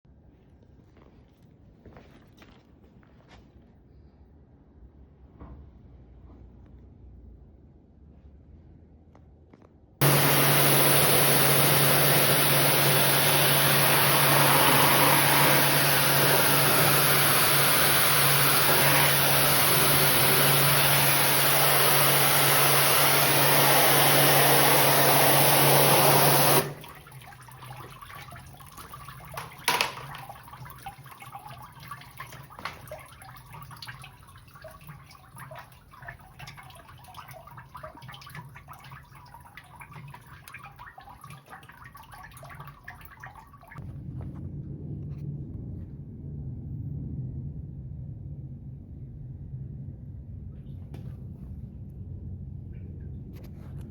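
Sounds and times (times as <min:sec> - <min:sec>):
water spraying hard: 0:10.0 - 0:33.6
pump motor hum: 0:10.0 - 0:43.8
water dripping and trickling: 0:26.5 - 0:43.8.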